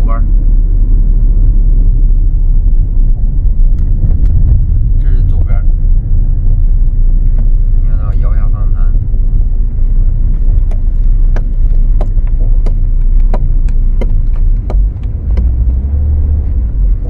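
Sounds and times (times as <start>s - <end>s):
low road rumble: 0.0s - 17.0s.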